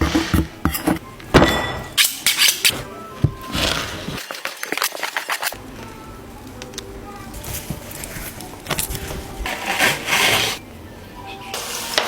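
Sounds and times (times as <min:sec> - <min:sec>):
kitchen knocks and clatters: 0:00.0 - 0:05.6
scraping or rustling: 0:02.6 - 0:05.6, 0:07.3 - 0:10.6.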